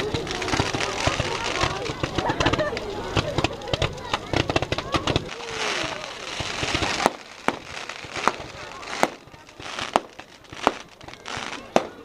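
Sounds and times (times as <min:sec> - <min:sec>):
fireworks bangs: 0:00.0 - 0:12.0
hiss of noise: 0:00.0 - 0:12.0.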